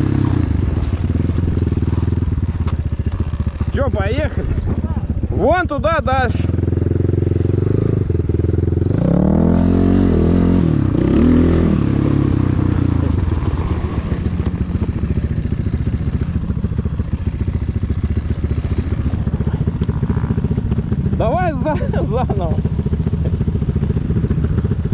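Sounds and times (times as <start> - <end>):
motorcycle engine revving and idling: 0.0 - 24.9.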